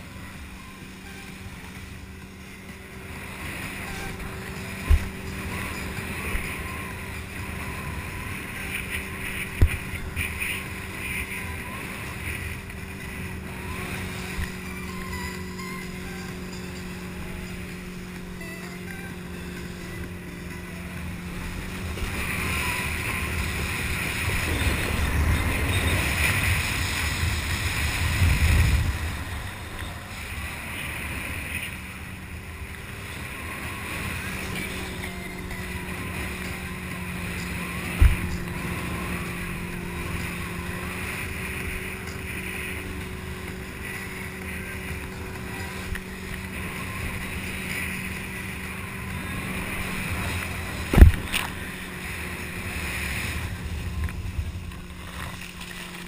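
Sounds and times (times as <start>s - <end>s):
motorboat engine humming: 0.0s - 56.0s
rushing water: 0.0s - 56.0s
wind buffeting the microphone: 24.0s - 30.0s, 50.8s - 51.6s.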